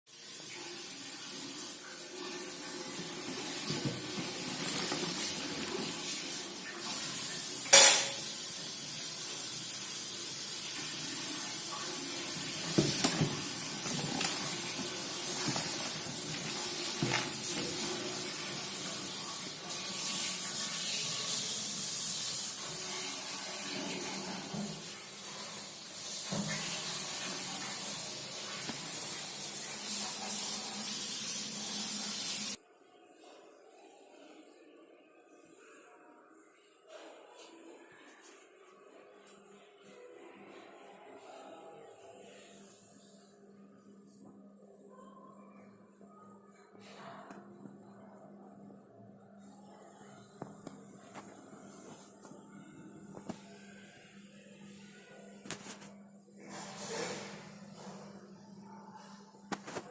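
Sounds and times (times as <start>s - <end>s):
water spraying from tap: 0.1s - 32.6s.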